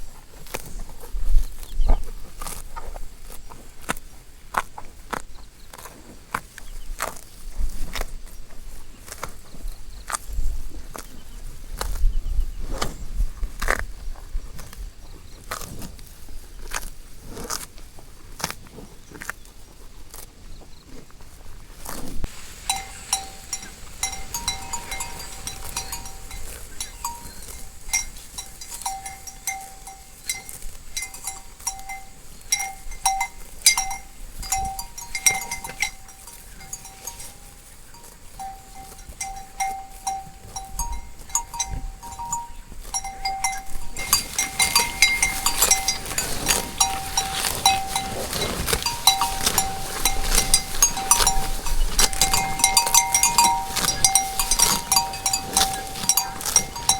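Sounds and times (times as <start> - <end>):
cowbells clanking: 22.3 - 56.9.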